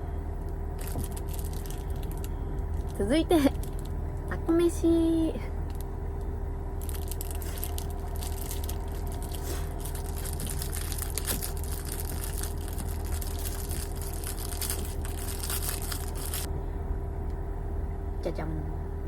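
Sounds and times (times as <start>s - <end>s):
constant mid-pitched tone: 0.0s - 19.0s
steady low hum: 0.0s - 19.0s
plastic packaging crinkling: 0.4s - 4.0s, 5.7s - 5.9s, 6.8s - 16.5s.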